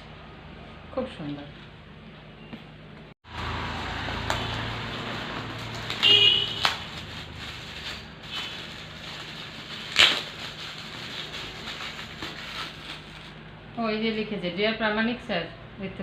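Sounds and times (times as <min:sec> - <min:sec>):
gift wrapping rustling: 0:04.5 - 0:13.4.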